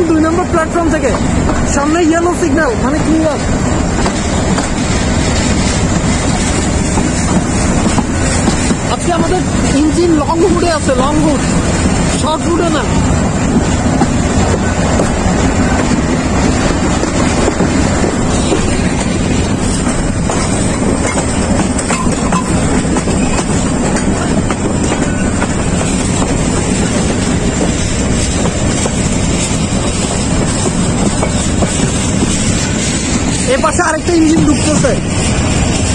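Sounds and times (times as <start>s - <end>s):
train rumbling: 0.0s - 35.9s
wind buffeting microphone: 2.6s - 35.9s.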